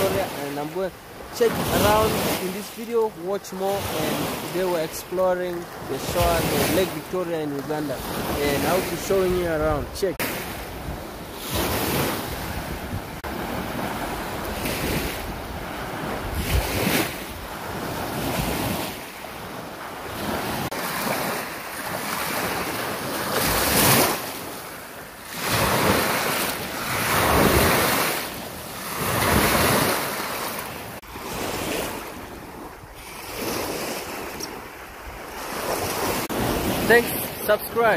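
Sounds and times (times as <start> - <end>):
waves washing onto beach: 0.0 - 37.9
wind on microphone: 7.7 - 19.0.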